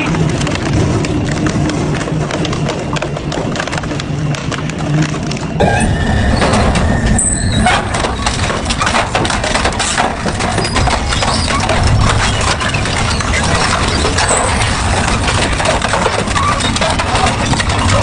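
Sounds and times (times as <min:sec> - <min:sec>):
metal scrap crunching and snapping: 0:07.6 - 0:18.0.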